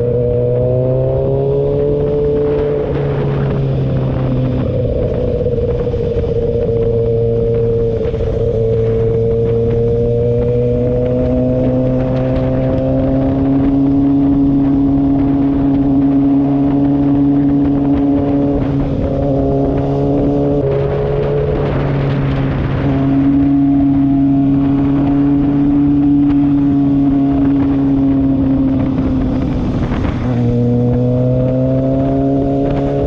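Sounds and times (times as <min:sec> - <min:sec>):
motorcycle engine cruising: 0:00.0 - 0:33.0
wind rush: 0:00.0 - 0:33.0.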